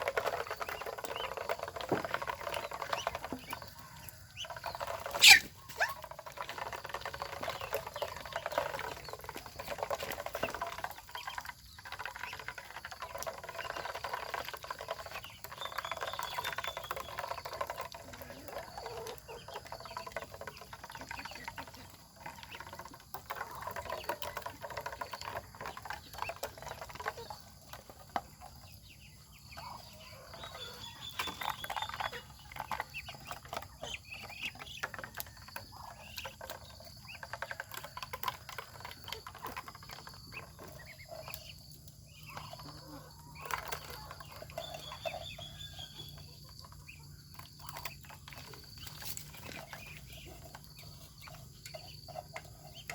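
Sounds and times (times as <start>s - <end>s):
ducks dabbling and pecking: 0.0s - 52.9s
short high duck calls: 5.2s - 5.9s.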